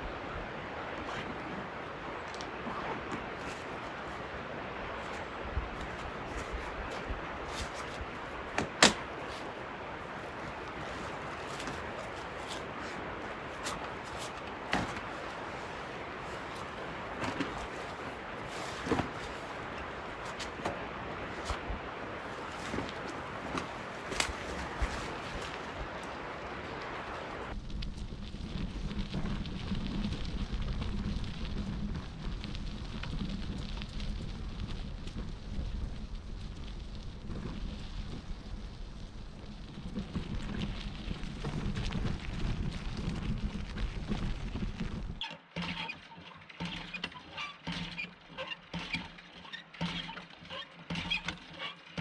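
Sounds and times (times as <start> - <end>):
bicycle tyres on gravel: 0.0 - 45.2
wind rumble on microphone: 0.0 - 45.2
bicycle knocks and rattles: 4.9 - 27.6.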